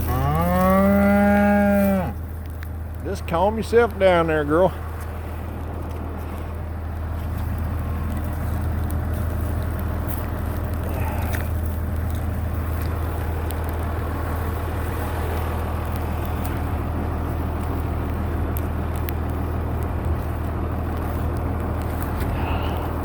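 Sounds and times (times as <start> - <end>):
tractor engine running: 0.0 - 23.0
faint clicks: 15.8 - 23.0.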